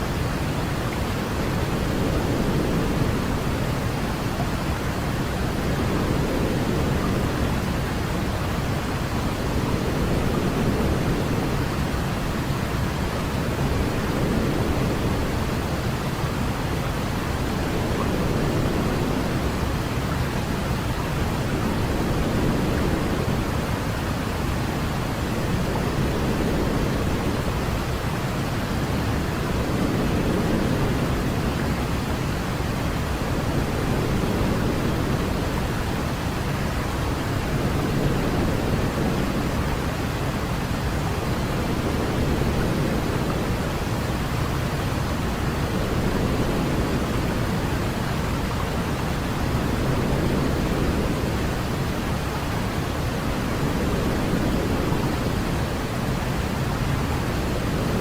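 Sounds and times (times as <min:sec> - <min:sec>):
low continuous hiss: 0:00.0 - 0:58.0.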